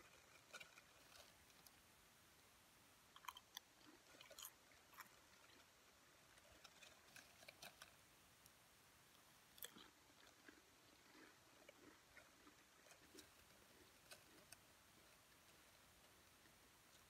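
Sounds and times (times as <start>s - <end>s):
crunching potato chips chewed: 3.2s - 8.0s, 9.5s - 14.7s.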